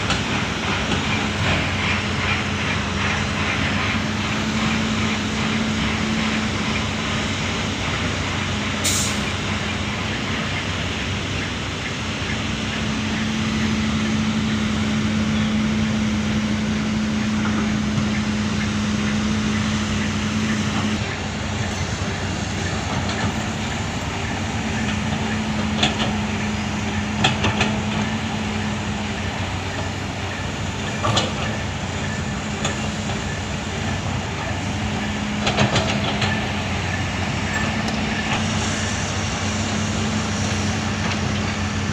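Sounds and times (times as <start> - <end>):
excavator diesel engine running: 0.0 - 41.9
sharp clanks and knocks: 30.8 - 31.6, 35.4 - 36.6.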